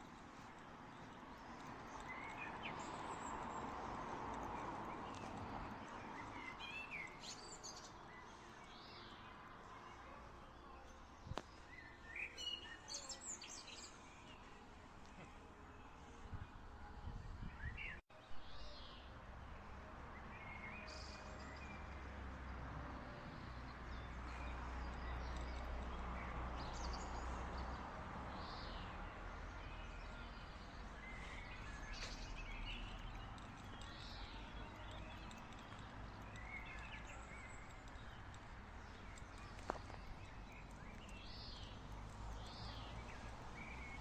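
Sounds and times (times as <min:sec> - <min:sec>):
birds chirping: 0:23.3 - 0:44.0.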